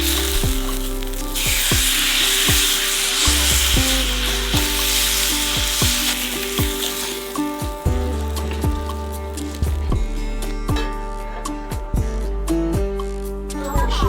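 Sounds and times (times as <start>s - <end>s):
food frying sizzle: 0.0s - 10.0s
background music with bass beat: 0.0s - 14.0s.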